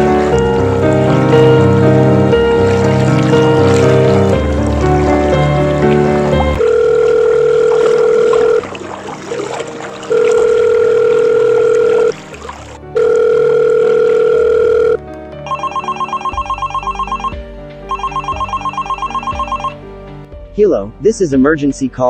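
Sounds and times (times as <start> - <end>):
river water rushing: 0.0 - 12.9
telephone ringback tone: 6.6 - 8.6, 10.1 - 12.2, 13.0 - 19.8
telephone ringing trill: 6.6 - 8.6, 10.1 - 12.2, 13.0 - 19.8.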